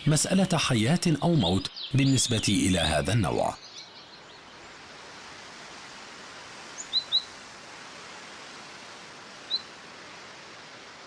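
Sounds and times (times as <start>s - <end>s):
bird chirping: 0.0s - 4.7s, 6.8s - 7.3s, 9.5s - 9.7s
steady outdoor hiss: 0.0s - 11.0s.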